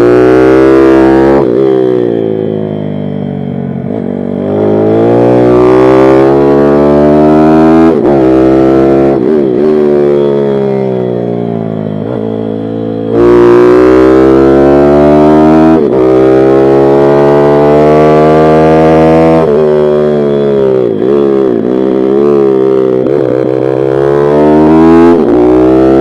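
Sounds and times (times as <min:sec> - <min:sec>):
pit bike engine revving: 0:13.0 - 0:26.0.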